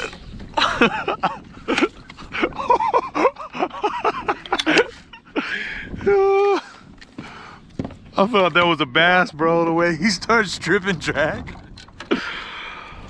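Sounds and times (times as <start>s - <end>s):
man talking and exclaiming: 6.0s - 6.7s, 8.2s - 11.6s.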